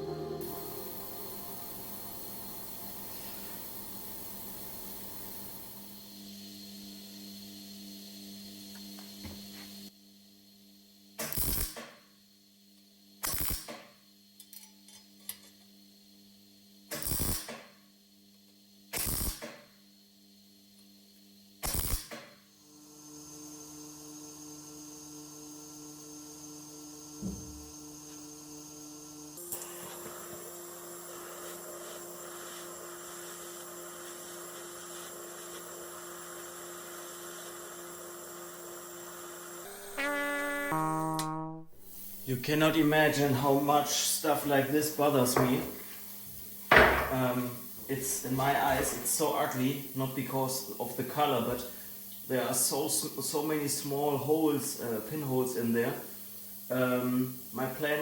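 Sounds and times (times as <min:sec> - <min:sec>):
steady tonal hum: 0:00.0 - 0:05.2
steady electrical hum: 0:00.0 - 0:07.0, 0:41.8 - 0:58.0
faint hiss: 0:41.8 - 0:58.0.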